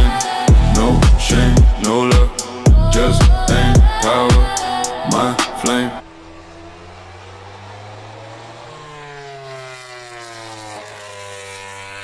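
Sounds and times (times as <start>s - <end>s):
music: 0.0s - 6.0s
motorcycle engine running: 0.0s - 12.0s.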